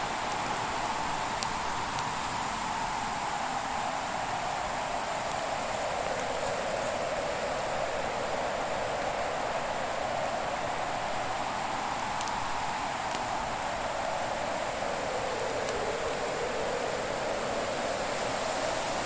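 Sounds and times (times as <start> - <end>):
burning wood crackles: 10.0 - 19.0.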